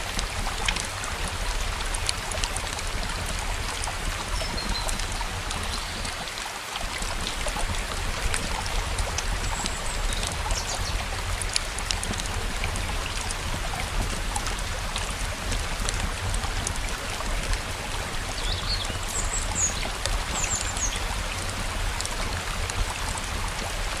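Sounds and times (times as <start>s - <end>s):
flowing stream water: 0.0s - 24.0s
rain: 0.0s - 24.0s.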